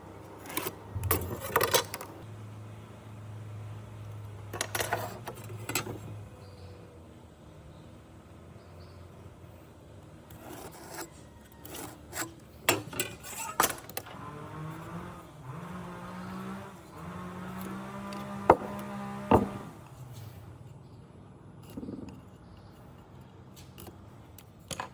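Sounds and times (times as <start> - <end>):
sharp knocks: 18.4 - 19.7.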